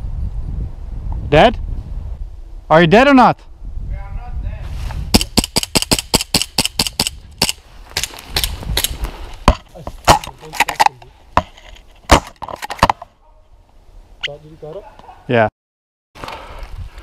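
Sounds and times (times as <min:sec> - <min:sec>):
airsoft gunfire cracks: 0:05.2 - 0:09.0.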